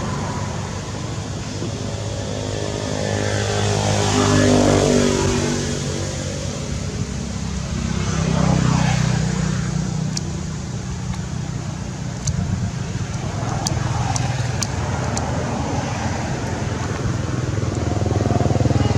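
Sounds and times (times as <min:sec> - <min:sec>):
engine humming: 0:00.0 - 0:18.9
sharp clicks: 0:10.0 - 0:18.7.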